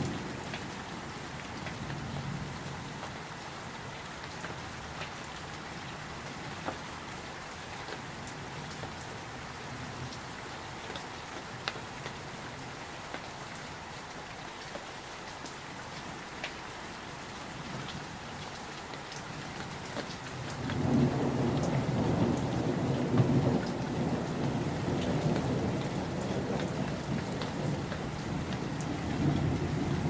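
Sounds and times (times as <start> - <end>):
rain falling: 0.0 - 30.0
low rumble of thunder: 20.6 - 30.0.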